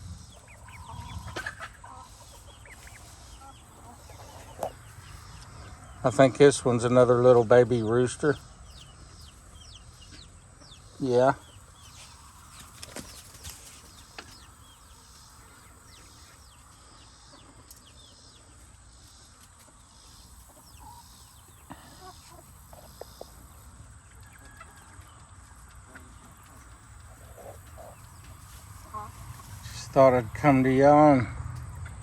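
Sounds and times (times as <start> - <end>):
low chicken calls: 0.0 - 6.0
chickens clucking softly: 0.0 - 32.0.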